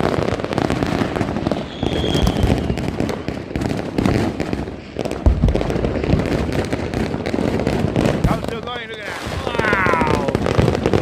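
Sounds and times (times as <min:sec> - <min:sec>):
firecrackers crackling pops: 0:00.0 - 0:11.0
firework low boom: 0:00.0 - 0:11.0
firework whistle: 0:01.2 - 0:03.6.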